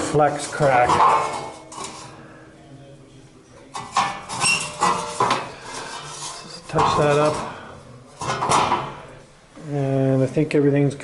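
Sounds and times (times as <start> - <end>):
metallic clanks of steel parts: 0.0 - 2.2, 3.7 - 7.5, 8.2 - 9.0.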